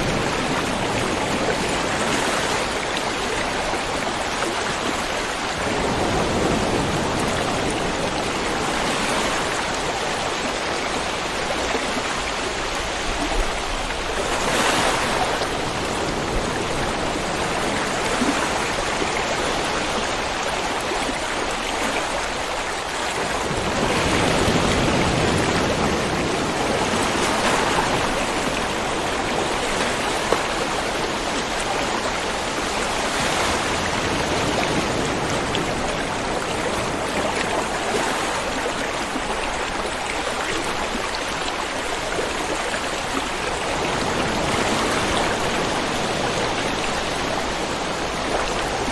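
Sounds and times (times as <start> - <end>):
river flowing over stones: 0.0 - 48.9.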